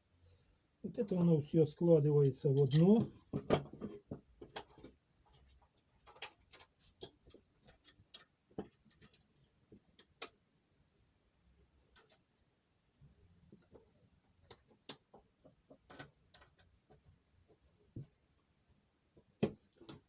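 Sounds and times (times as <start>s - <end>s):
small metal parts clicking: 2.6s - 3.1s, 6.0s - 9.3s.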